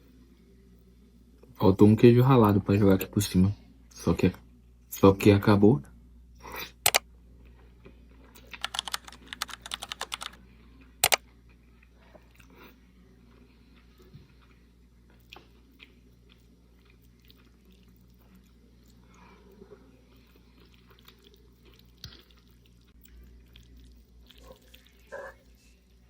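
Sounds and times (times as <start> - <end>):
person chewing food: 6.4 - 26.0.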